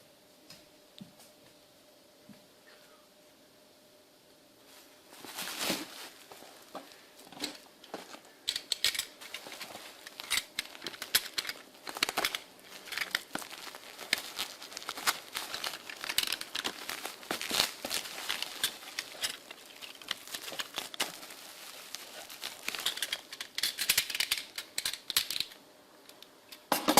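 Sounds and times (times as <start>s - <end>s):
packaging crinkling: 5.1s - 25.6s
packaging tearing: 8.7s - 25.5s.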